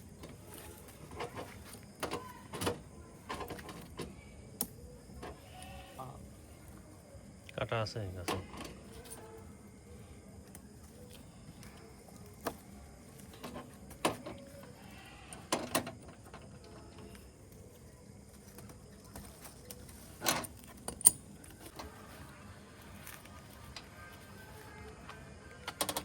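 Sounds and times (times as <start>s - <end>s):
tools and parts clattering: 12.4s - 14.7s, 18.5s - 22.0s, 25.6s - 26.0s.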